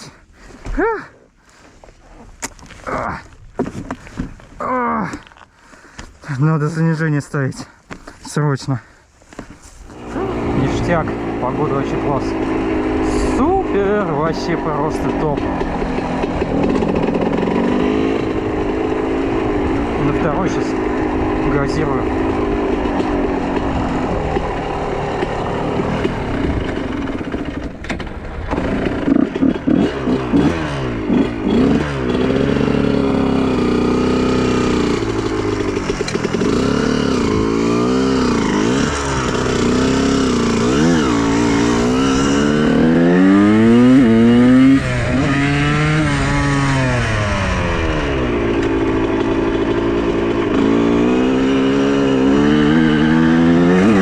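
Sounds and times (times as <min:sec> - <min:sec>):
motocross engine revving: 0:09.8 - 0:54.0.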